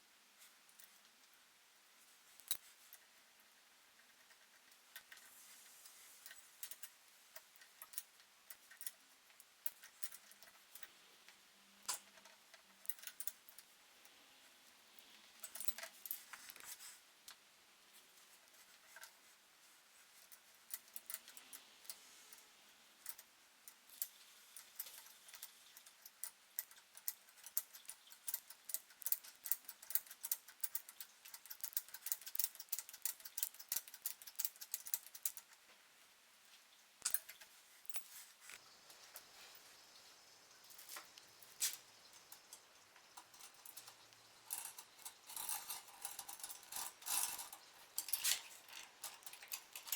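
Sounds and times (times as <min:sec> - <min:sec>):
metallic clicks of bicycle parts: 0:20.2 - 0:22.4, 0:23.0 - 0:35.6, 0:37.0 - 0:39.2, 0:40.7 - 0:49.9.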